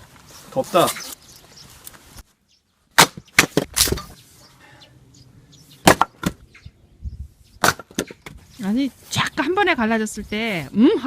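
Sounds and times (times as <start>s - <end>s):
axe splitting logs: 2.9s - 4.1s, 5.8s - 6.4s, 7.6s - 8.4s.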